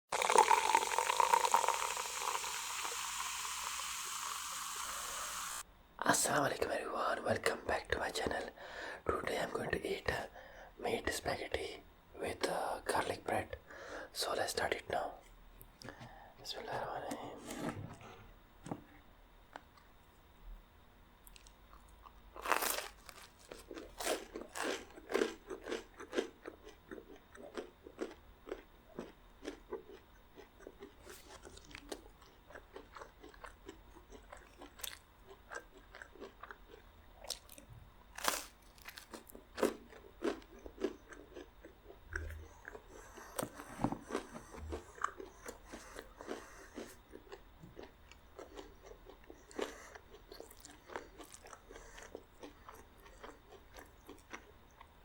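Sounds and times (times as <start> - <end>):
crunchy bread being chewed: 21.2 - 55.0.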